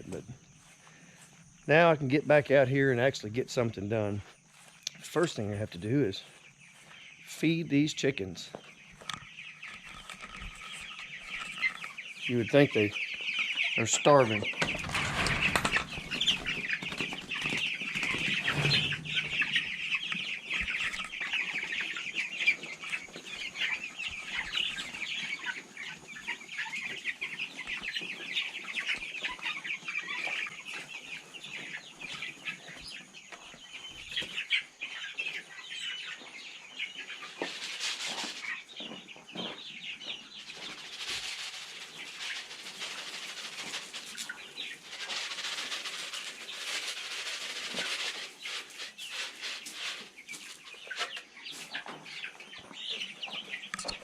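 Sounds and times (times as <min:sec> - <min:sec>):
chicks cheeping and clucking: 0:00.0 - 0:54.0
rustling: 0:14.2 - 0:22.0, 0:37.1 - 0:38.6, 0:40.4 - 0:51.8.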